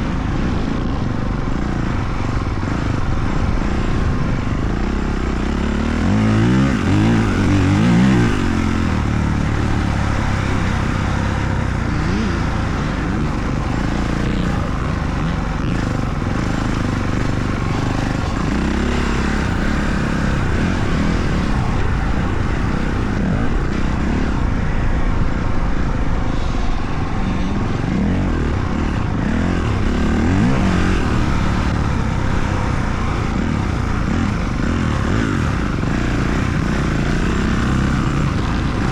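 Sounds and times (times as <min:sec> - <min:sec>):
dirt bike engine revving: 0:00.0 - 0:38.9
steady rushing noise: 0:00.0 - 0:38.9.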